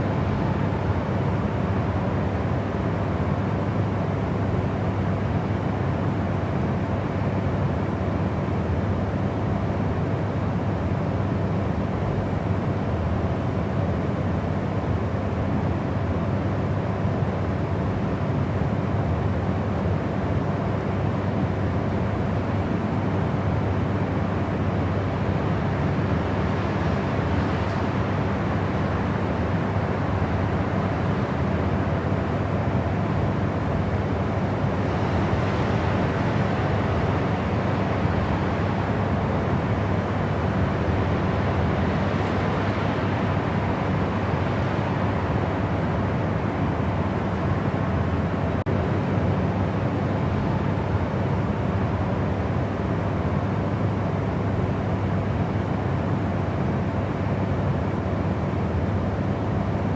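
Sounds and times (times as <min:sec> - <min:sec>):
white noise hiss: 0:00.0 - 0:04.0.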